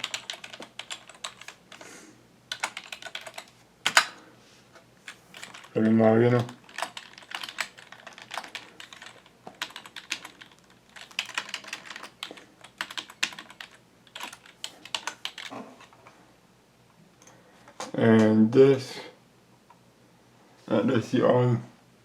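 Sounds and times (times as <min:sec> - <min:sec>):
computer keyboard typing: 0:00.0 - 0:01.6, 0:02.5 - 0:04.1, 0:05.1 - 0:15.5.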